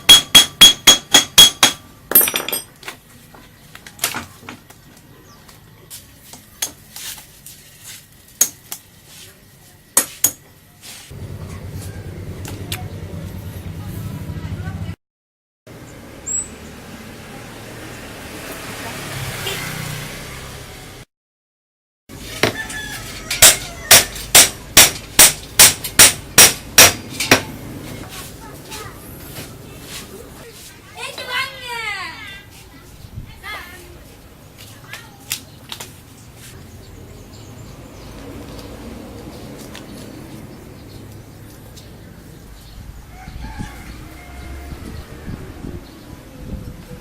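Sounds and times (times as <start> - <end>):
hammer striking with short ring: 0.0 - 2.6
metal tools clinking: 0.2 - 2.9.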